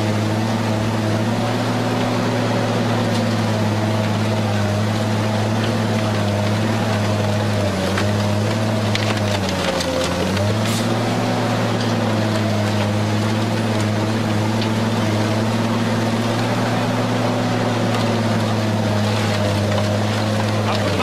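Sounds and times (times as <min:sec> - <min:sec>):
scrap shredder humming: 0:00.0 - 0:21.0.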